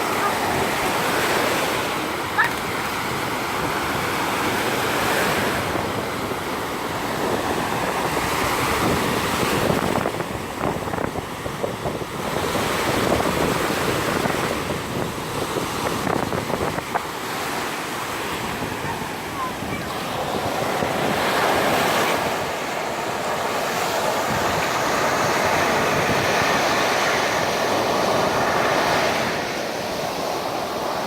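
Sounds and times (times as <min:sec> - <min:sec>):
surf breaking on sand beach: 0:00.0 - 0:31.0
wind buffeting microphone: 0:00.0 - 0:31.0.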